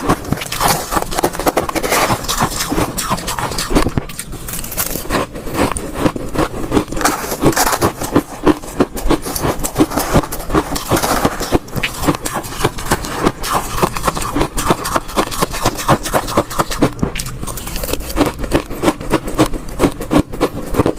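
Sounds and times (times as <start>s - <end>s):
ice cubes being crunched: 0.0s - 20.9s.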